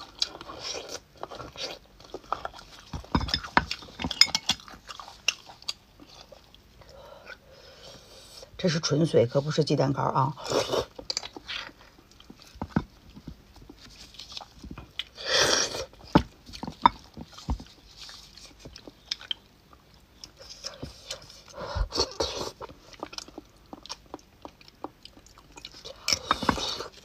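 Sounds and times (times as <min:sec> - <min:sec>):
wet chewing and lip smacking: 0:17.0 - 0:27.0.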